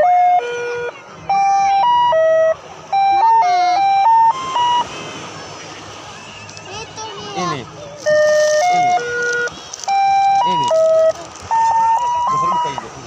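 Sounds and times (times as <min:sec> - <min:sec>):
electronic jingle melody: 0:00.0 - 0:04.9, 0:08.0 - 0:12.9.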